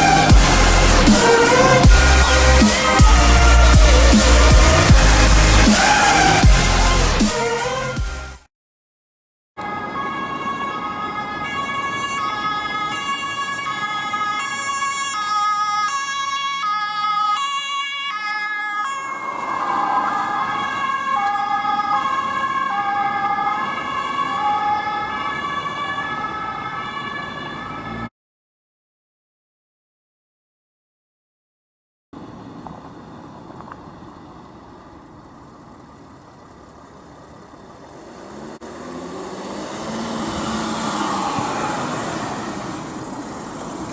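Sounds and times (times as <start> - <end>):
two-tone police siren: 0.0 - 6.6, 9.6 - 28.1, 38.6 - 43.9.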